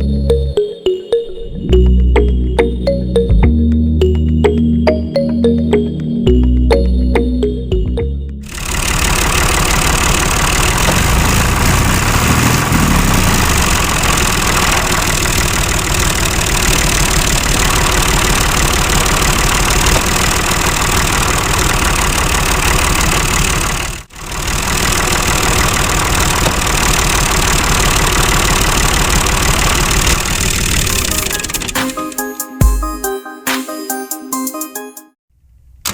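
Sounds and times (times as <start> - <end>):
small engine running: 8.4 - 31.5.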